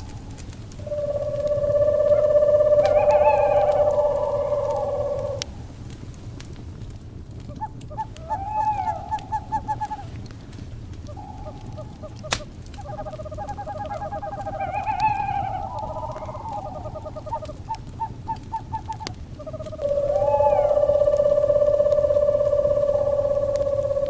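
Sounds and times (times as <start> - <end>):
owls calling in trills: 0.0 - 5.7, 7.4 - 10.2, 11.0 - 24.0
crackling fire: 0.0 - 24.0.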